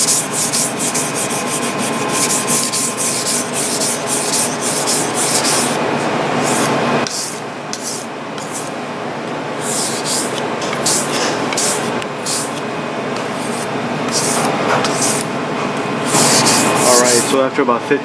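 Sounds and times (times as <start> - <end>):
knife scraping on whetstone: 0.0 - 5.8, 6.4 - 8.7, 9.6 - 12.6, 13.2 - 15.2, 16.1 - 17.3.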